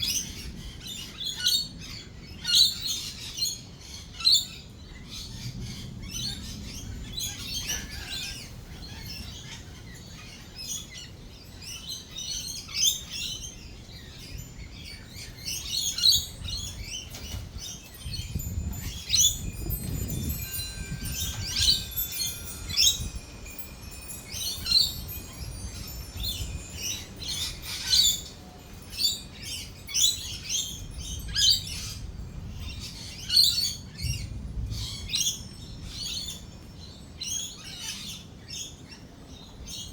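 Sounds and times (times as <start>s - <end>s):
lorikeets chirping and screeching: 0.0s - 39.9s.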